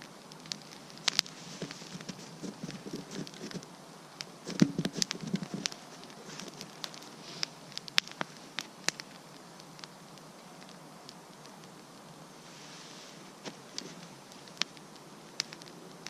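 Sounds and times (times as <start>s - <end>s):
campfire crackling and popping: 0.0s - 16.0s
shuffling or rustling: 1.1s - 3.7s, 4.4s - 7.6s, 12.4s - 14.2s.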